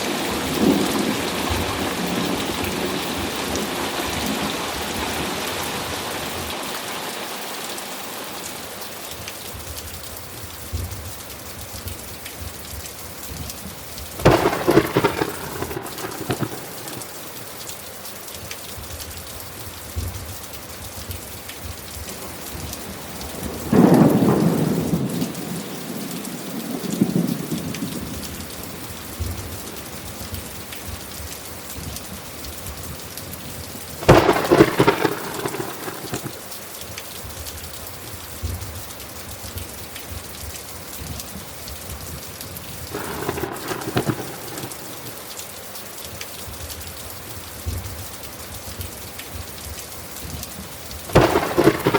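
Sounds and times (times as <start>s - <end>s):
thunder claps and rumble: 0.0s - 6.6s, 11.8s - 17.6s, 21.1s - 36.6s, 39.6s - 45.3s, 50.2s - 51.9s
steady rain falling: 0.0s - 51.9s.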